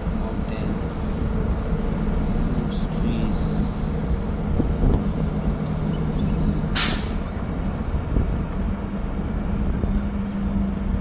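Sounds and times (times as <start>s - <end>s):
road rumble: 0.0s - 11.0s
vehicle engine hum: 0.0s - 11.0s
short sharp hiss: 6.8s - 7.3s.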